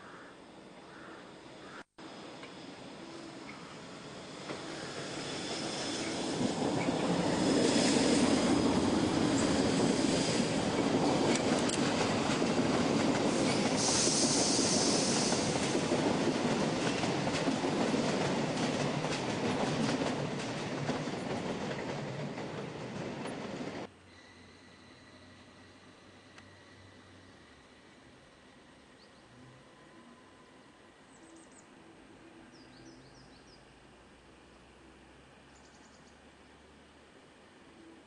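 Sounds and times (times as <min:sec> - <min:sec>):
train wheels over rail joints: 0:04.3 - 0:23.9.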